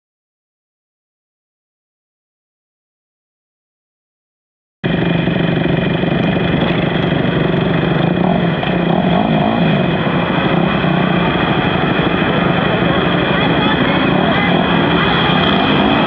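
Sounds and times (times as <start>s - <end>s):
motorcycle engines running: 4.8s - 16.0s.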